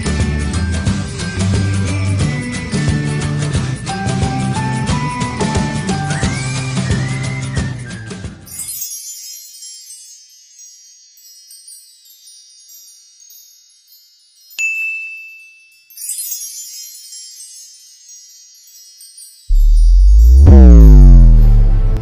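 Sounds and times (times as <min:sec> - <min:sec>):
chimes ringing: 0:08.5 - 0:21.3
loud deep sound: 0:19.5 - 0:22.0.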